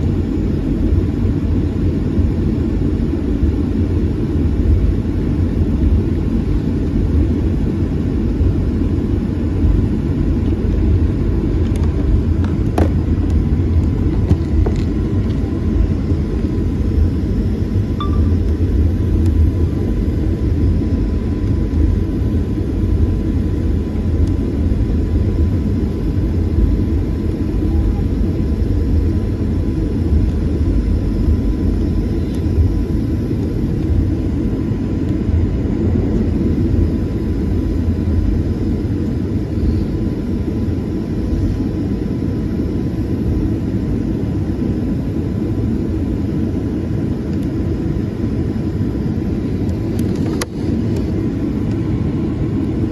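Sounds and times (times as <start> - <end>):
airliner low rumble: 0.0 - 52.9
faint high whine: 14.4 - 52.9.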